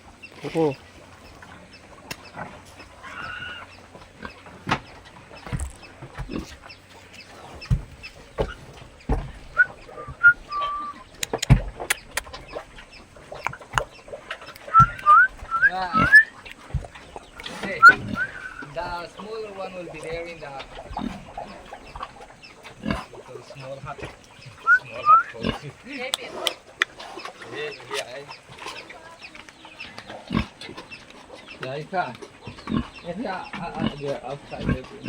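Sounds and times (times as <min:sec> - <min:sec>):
chickens clucking: 0:00.0 - 0:35.0.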